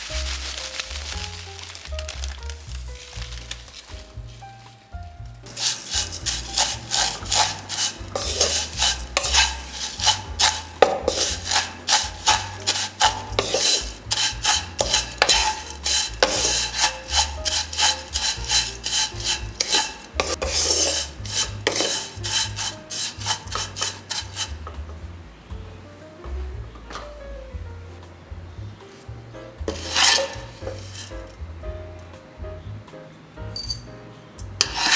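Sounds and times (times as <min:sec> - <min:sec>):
spatula scraping noodles in pan: 0:05.5 - 0:25.0, 0:29.7 - 0:31.4, 0:34.6 - 0:34.9.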